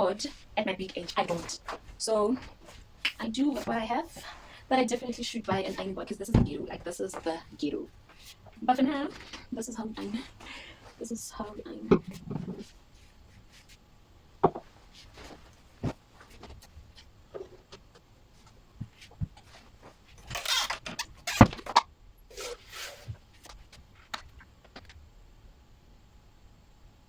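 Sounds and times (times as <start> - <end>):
fabric rustling: 0.0 - 13.9, 14.6 - 20.7.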